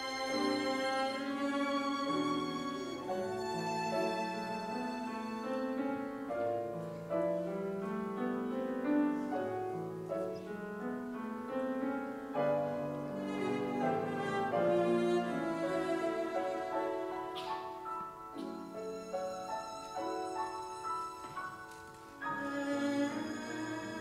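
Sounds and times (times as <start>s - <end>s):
violin: 0.0s - 11.1s, 12.3s - 24.0s
cello: 0.0s - 24.0s
piano chords: 0.0s - 24.0s.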